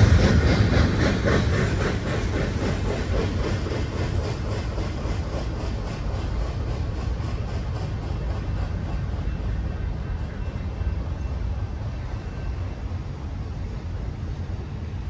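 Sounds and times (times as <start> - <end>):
wheels clicking over rail joints: 0.0 - 11.4
train low rumble: 0.0 - 15.0.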